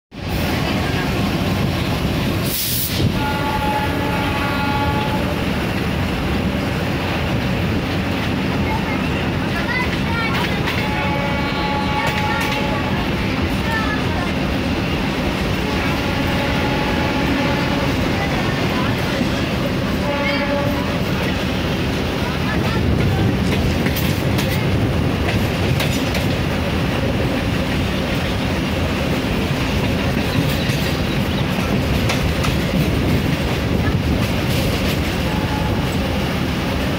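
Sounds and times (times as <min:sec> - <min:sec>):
train rumbling: 0:00.1 - 0:36.9
train horn blast: 0:02.9 - 0:05.6, 0:10.7 - 0:13.1, 0:15.6 - 0:18.2, 0:19.9 - 0:21.2, 0:35.2 - 0:36.2.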